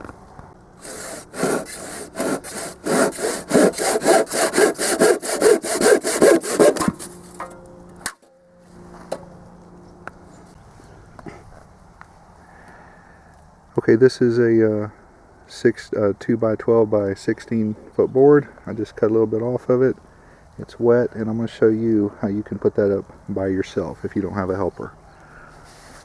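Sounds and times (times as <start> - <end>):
hand saw cutting wood: 0.8 - 7.5.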